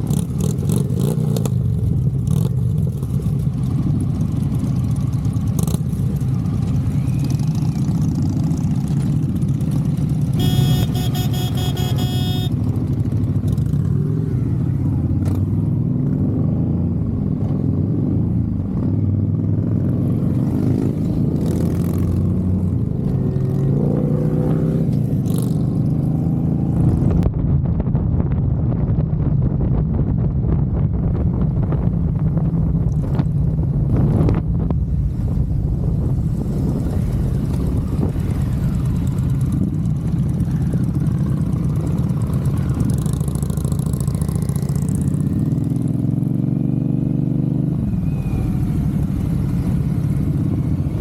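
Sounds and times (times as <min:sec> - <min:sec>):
motorcycle engine running: 0:00.0 - 0:15.7, 0:31.2 - 0:51.0
high steady tone: 0:10.4 - 0:12.6.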